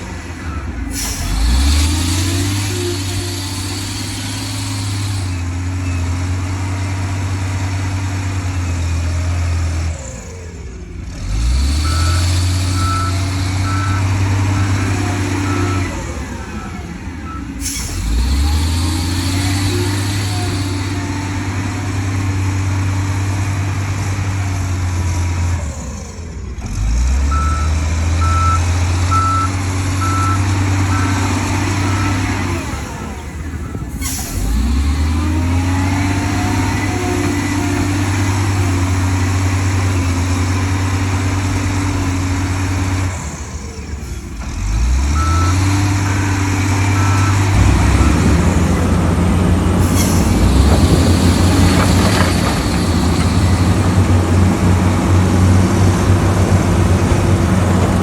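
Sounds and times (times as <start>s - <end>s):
heavy diesel engine under load: 0.0s - 58.0s
reverse alarm beeping: 46.9s - 48.9s.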